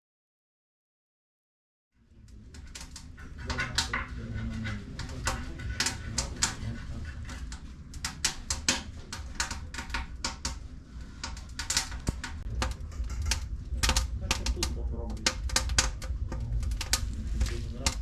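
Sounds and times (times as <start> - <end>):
steady low rumble: 2.0 - 18.0
sharp clicks and crackles: 2.1 - 18.0.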